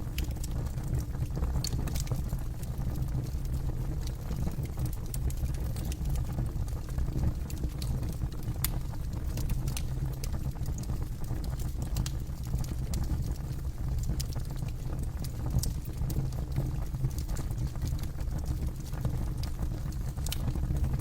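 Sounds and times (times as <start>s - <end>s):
campfire crackling: 0.1s - 2.1s, 17.9s - 21.0s.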